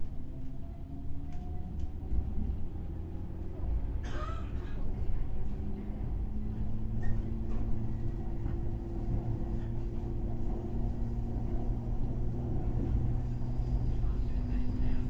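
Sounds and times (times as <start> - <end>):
train interior rumble: 0.0 - 15.0.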